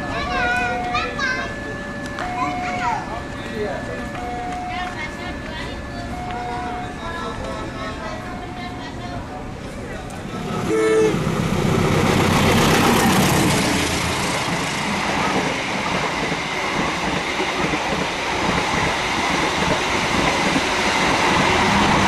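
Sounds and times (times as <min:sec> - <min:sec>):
passenger train running: 0:00.0 - 0:22.0.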